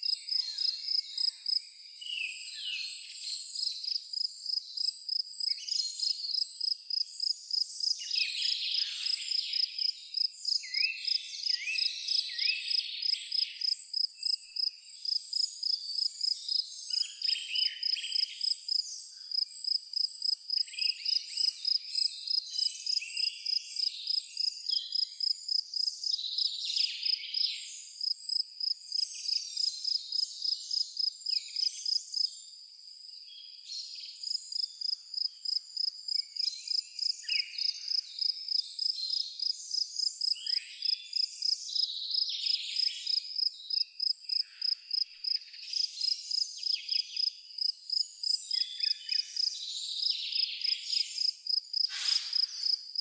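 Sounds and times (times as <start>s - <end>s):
cricket chirping: 0.0s - 2.2s, 3.6s - 53.0s
songbirds singing: 0.0s - 53.0s.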